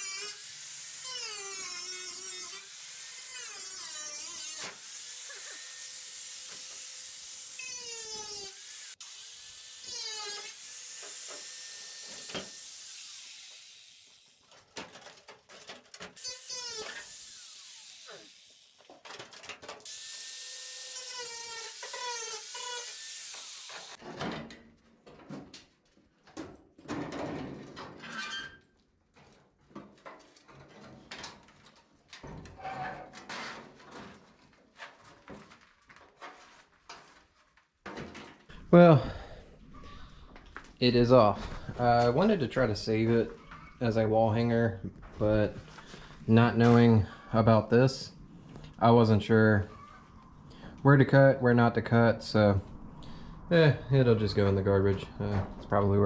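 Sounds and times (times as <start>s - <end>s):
power tool cutting sheet metal: 0.0s - 24.0s
knocks and clanks: 14.4s - 17.1s, 18.8s - 19.9s.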